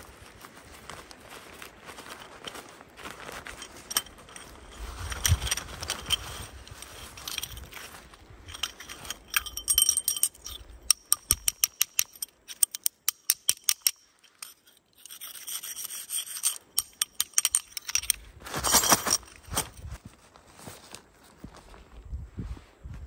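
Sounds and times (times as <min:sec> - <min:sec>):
rustling: 0:00.0 - 0:12.8, 0:13.7 - 0:23.0
metallic jingling and clinking: 0:01.9 - 0:20.0.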